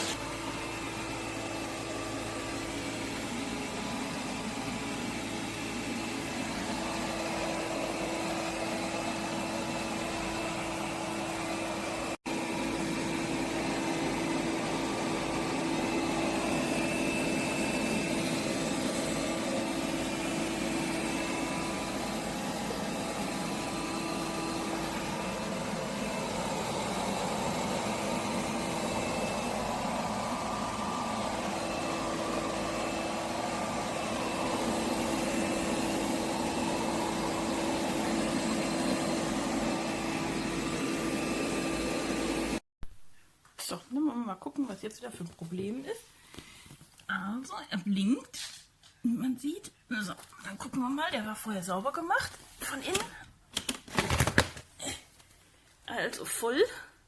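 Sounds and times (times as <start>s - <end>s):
robot vacuum cleaner motor hum: 0.0s - 42.6s.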